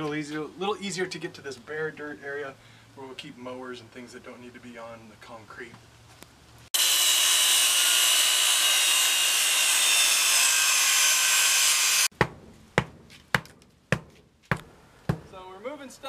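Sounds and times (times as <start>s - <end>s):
power tool cutting: 6.7s - 12.1s
sharp knocks: 12.2s - 15.3s.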